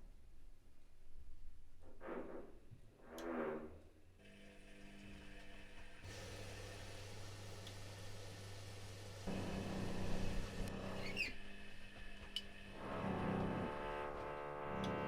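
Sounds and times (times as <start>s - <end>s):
washing machine drum humming: 4.9s - 15.0s
short squeaks: 10.7s - 11.5s.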